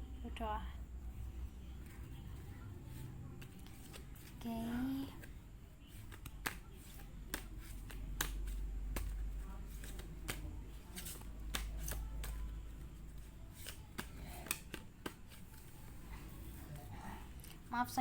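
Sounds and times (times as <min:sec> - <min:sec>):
cards being shuffled: 0:03.4 - 0:17.7.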